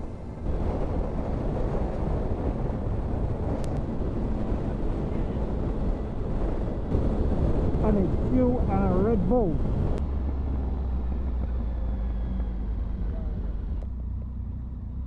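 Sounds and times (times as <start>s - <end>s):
wind buffeting microphone: 0.0s - 13.9s
motorcycle engine running: 9.8s - 15.0s.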